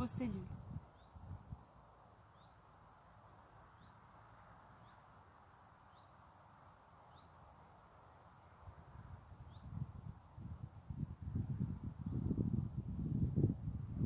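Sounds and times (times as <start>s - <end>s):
wind gusts on microphone: 0.0s - 1.7s, 8.7s - 14.0s.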